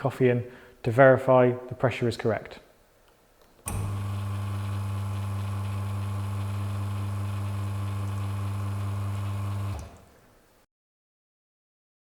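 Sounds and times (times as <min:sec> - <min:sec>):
espresso machine pump humming: 0:03.7 - 0:10.1.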